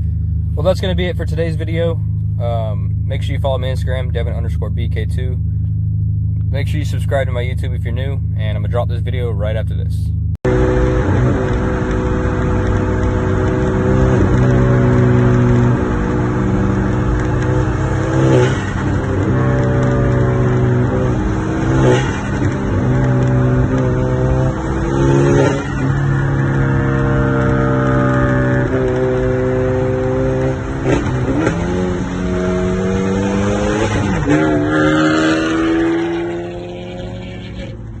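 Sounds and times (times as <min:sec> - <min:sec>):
car engine running: 0:00.0 - 0:38.0.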